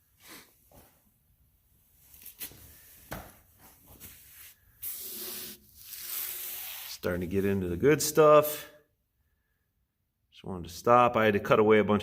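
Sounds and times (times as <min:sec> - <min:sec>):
rough scraping rub: 0:04.0 - 0:07.6.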